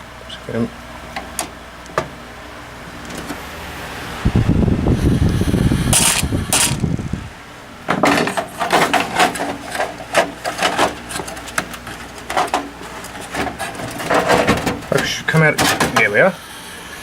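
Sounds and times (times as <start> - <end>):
low rumble: 3.7 - 7.5
knocks and scrapes of computer parts: 7.9 - 16.2.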